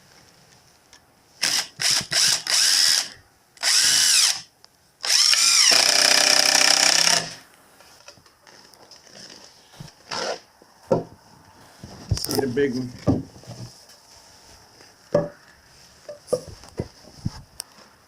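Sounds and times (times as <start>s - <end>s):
power drill running: 1.4s - 7.4s.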